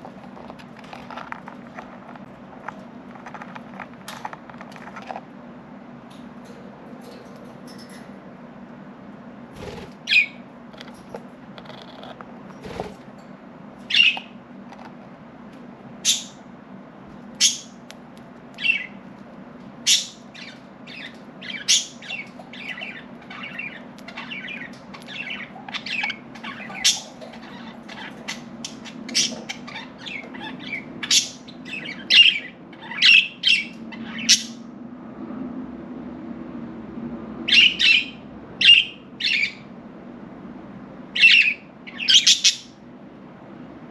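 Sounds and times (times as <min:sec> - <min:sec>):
faint low hum: 0:00.0 - 0:43.9
budgerigars chirping and squawking: 0:09.6 - 0:13.0, 0:13.8 - 0:15.0, 0:16.0 - 0:16.4, 0:17.4 - 0:17.8, 0:18.6 - 0:19.0, 0:19.8 - 0:34.7, 0:37.5 - 0:39.6, 0:41.2 - 0:42.8.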